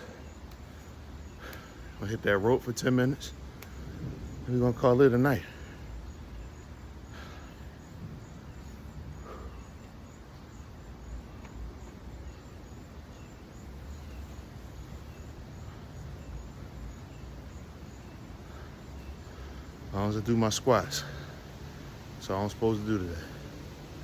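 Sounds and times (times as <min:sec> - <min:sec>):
insects chirping: 0:00.0 - 0:24.0
low rumble: 0:03.3 - 0:09.6.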